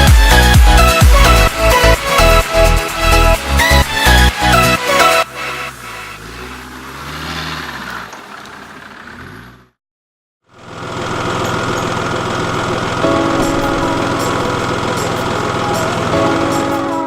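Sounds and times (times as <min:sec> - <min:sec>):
steady engine-like drone: 0:00.0 - 0:06.2, 0:10.5 - 0:17.0
off-road vehicle engine revving: 0:00.0 - 0:09.8, 0:10.6 - 0:16.7.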